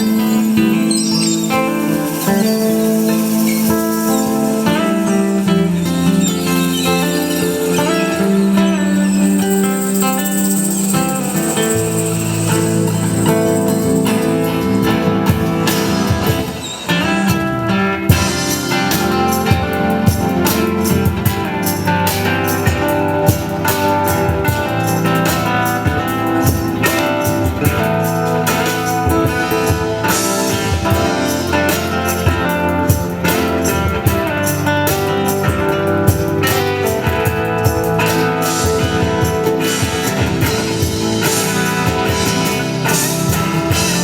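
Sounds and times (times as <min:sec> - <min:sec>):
drum kit: 0:00.0 - 0:44.0
plucked strings: 0:00.0 - 0:44.0.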